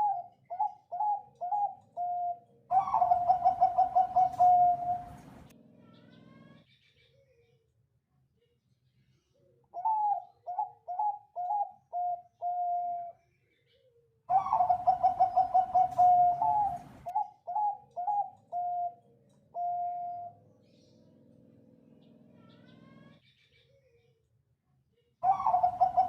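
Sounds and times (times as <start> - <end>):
dove cooing song: 0.0 - 5.5, 9.7 - 13.1, 14.3 - 20.4, 25.2 - 26.0.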